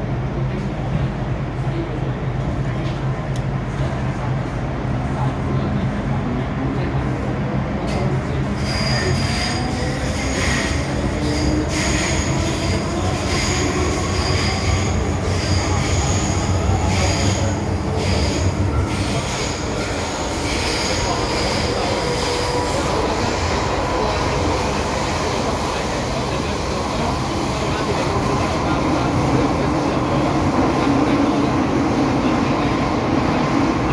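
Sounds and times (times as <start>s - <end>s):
train rumble: 0.0s - 33.9s
train wheels squealing on rails: 7.9s - 30.3s.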